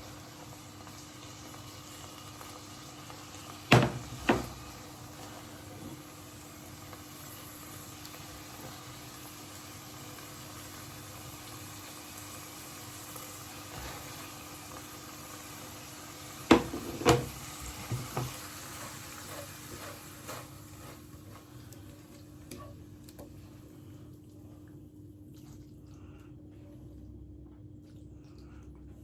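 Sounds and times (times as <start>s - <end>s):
noodles sizzling in a pan: 0.0s - 23.8s
utensil clattering against pan: 16.5s - 21.4s.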